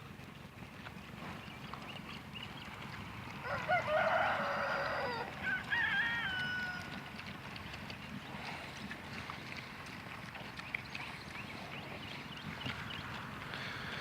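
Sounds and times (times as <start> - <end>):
rooster crowing: 3.4 - 6.9.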